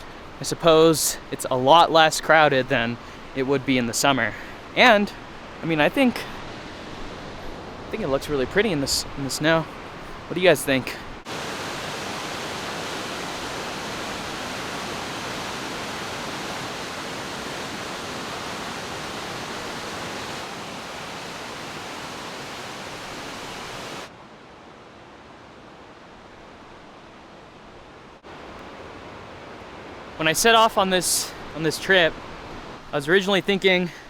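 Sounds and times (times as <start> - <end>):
waterfall roaring: 10.3 - 24.2.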